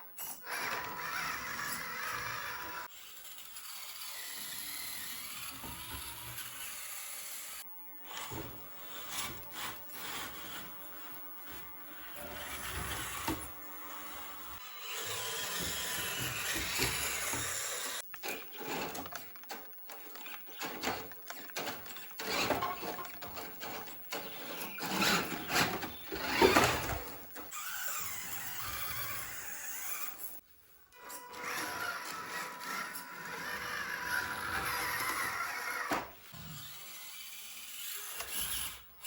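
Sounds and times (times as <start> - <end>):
toy car electric motors whirring: 0.0 - 30.4, 31.0 - 39.0
plastic clattering and knocking: 18.1 - 27.5.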